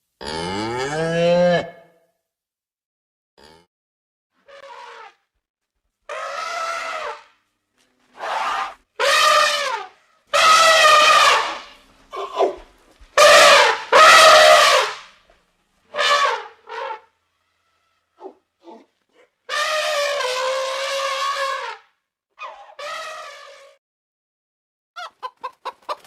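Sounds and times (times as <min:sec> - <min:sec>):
elephant trumpeting: 0:04.4 - 0:05.2, 0:06.1 - 0:07.4, 0:08.1 - 0:12.6, 0:13.2 - 0:15.1, 0:15.9 - 0:21.8, 0:22.4 - 0:23.7.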